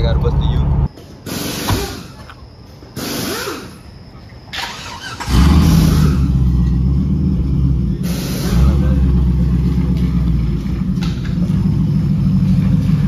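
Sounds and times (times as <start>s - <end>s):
truck engine loud exhaust drone: 0.0s - 2.2s, 5.2s - 13.0s.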